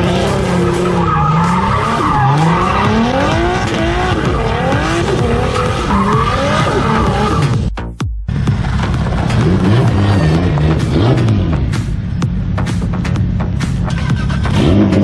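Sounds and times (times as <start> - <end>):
tyres squealing: 0.0 - 7.5
car engines revving: 0.0 - 7.7, 8.3 - 15.0.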